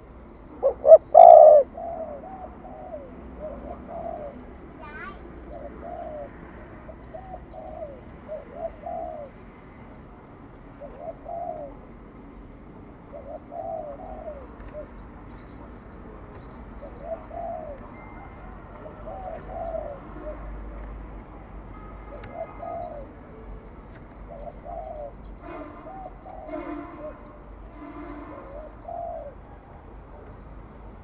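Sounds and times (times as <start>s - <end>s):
dove cooing: 0.6s - 9.4s, 10.8s - 11.9s, 13.1s - 15.0s, 16.8s - 21.0s, 22.1s - 23.4s, 24.2s - 25.2s, 25.8s - 30.3s.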